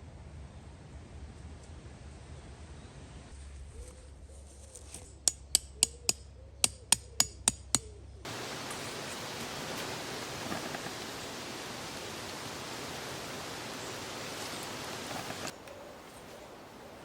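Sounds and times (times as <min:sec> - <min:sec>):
hammer striking tent peg: 0:05.2 - 0:08.0
steady rushing hiss: 0:08.3 - 0:17.0.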